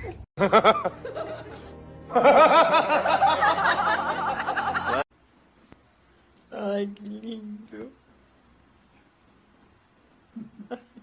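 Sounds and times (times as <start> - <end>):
music: 0.4 - 5.0.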